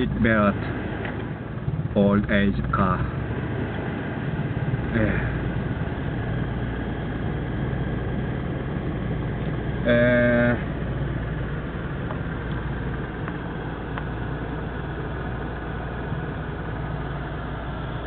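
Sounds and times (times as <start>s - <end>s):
car engine idling: 0.0s - 18.0s
car horn: 9.8s - 10.8s.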